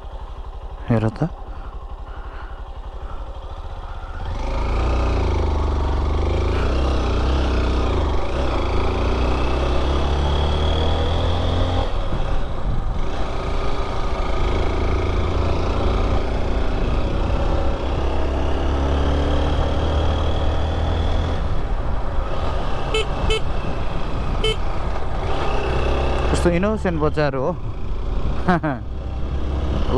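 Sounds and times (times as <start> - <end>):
motorcycle engine running: 0.0 - 29.9
road and wind noise: 0.0 - 29.9
short horn beeps: 22.8 - 23.5, 24.4 - 24.6.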